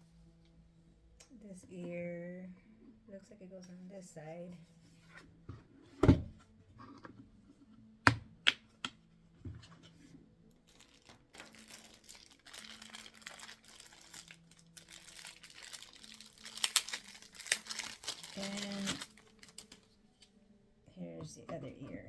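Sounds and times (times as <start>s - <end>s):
plastic wrapping crinkling: 10.6s - 20.0s.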